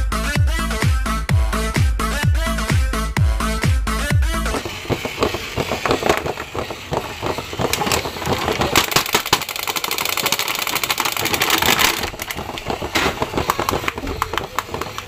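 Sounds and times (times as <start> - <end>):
dense clicks: 4.4 - 15.0
plastic packaging crackling: 4.5 - 15.0.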